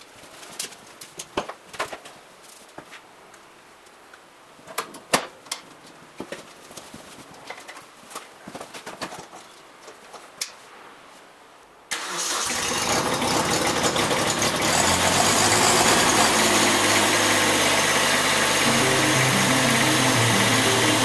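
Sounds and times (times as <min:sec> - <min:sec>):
diesel tractor engine starting: 0:11.9 - 0:21.0.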